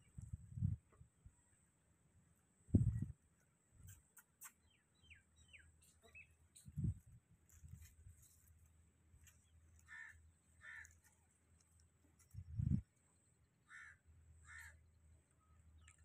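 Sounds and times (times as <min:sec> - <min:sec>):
faint bird chirps: 0:03.8 - 0:06.9.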